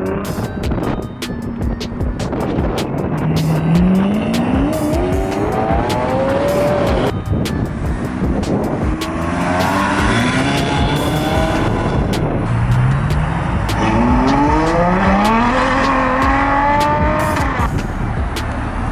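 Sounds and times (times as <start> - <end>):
supercar engine accelerating: 9.2 - 18.9.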